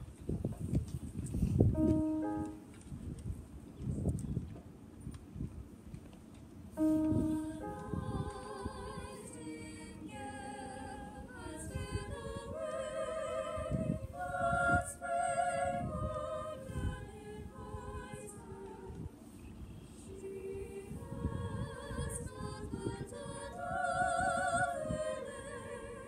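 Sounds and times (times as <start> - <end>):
choir singing a cappella: 6.9 - 26.0.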